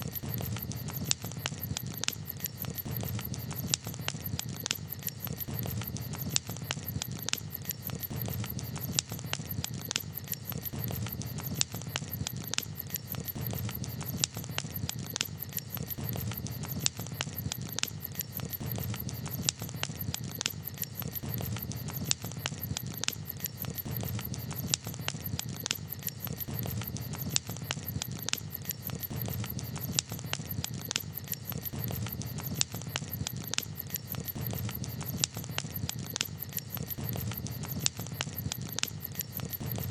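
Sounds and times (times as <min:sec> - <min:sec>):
campfire pops and snaps: 0:00.0 - 0:39.9
fire low rumble: 0:00.0 - 0:39.9.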